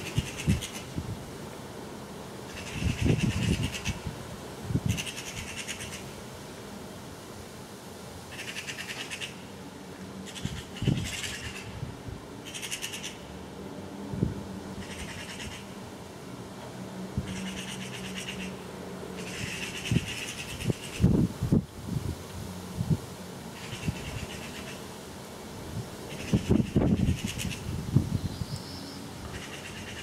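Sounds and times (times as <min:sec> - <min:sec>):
magpies chattering: 0:02.5 - 0:04.0, 0:04.8 - 0:06.1, 0:08.3 - 0:09.4, 0:10.2 - 0:11.8, 0:12.4 - 0:13.2, 0:14.8 - 0:15.7, 0:17.2 - 0:18.6, 0:19.2 - 0:21.1, 0:23.6 - 0:24.8, 0:26.1 - 0:27.6, 0:28.5 - 0:30.0.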